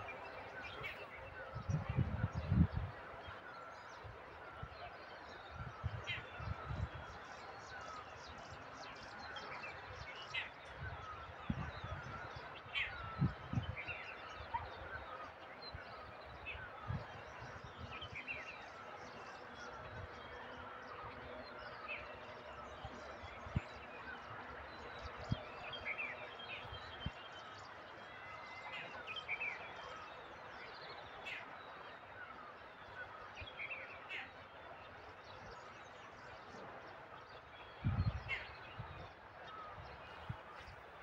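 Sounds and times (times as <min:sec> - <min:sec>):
outdoor background noise: 0:00.0 - 0:41.0
low rumble on microphone: 0:37.8 - 0:39.0.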